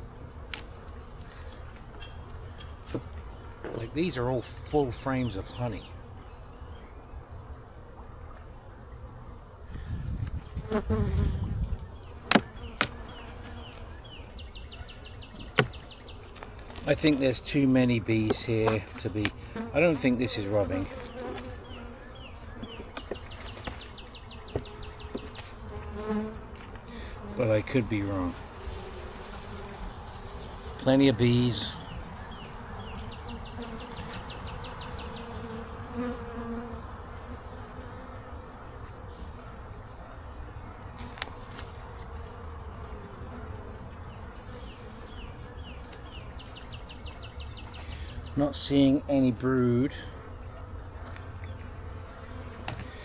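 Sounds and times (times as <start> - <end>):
honeybees buzzing: 0.0 - 53.0.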